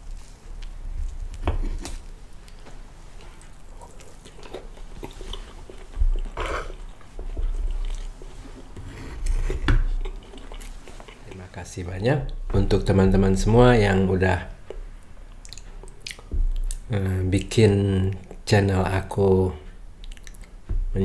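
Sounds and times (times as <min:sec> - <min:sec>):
chewing soft food: 0:00.0 - 0:11.6, 0:14.6 - 0:16.9, 0:20.0 - 0:20.6.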